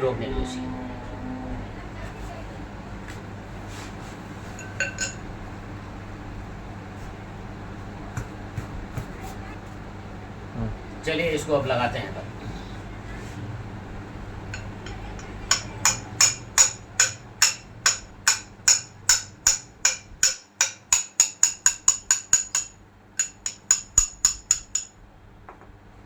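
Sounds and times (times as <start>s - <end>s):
hammer tapping on metal: 14.5s - 25.7s.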